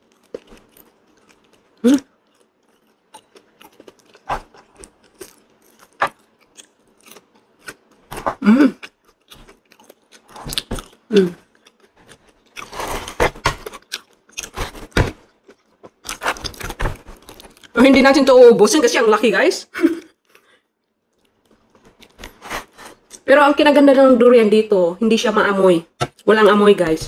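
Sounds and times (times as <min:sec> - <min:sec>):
person chewing wetly: 0:00.0 - 0:08.1, 0:08.8 - 0:17.7.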